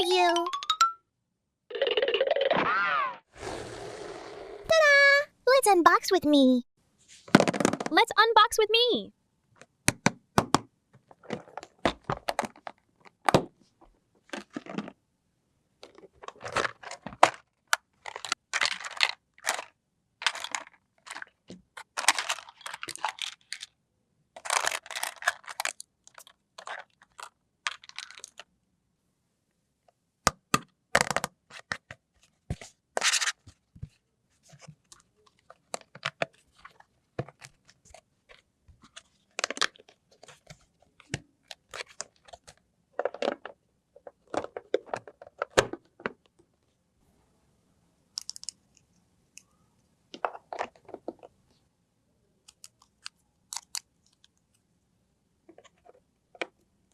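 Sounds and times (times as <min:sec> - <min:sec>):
packaging torn and crinkled: 0:24.4 - 0:28.4.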